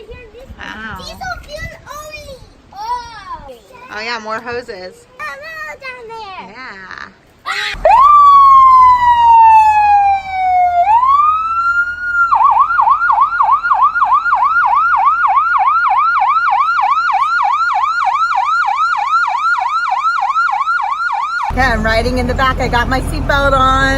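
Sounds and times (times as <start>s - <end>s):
fire engine siren: 7.8s - 23.9s.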